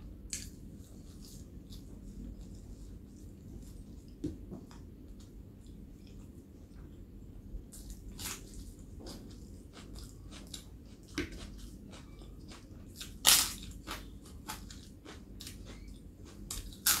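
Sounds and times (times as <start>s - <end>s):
chewing crunchy papad: 7.8s - 17.0s.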